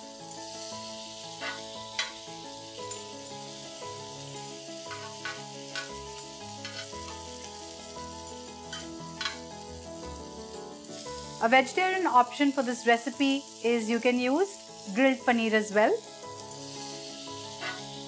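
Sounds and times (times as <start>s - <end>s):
chicken sizzling in grill pan: 0.0s - 18.0s
soft background music: 0.0s - 18.0s
spatula scraping and tapping pan: 1.4s - 2.2s, 4.9s - 6.0s, 6.6s - 7.2s, 8.7s - 9.5s, 17.6s - 17.9s.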